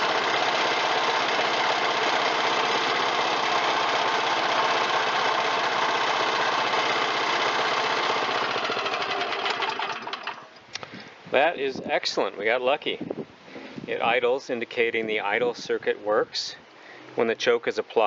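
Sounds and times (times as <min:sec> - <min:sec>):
mower engine running: 0:00.0 - 0:10.6.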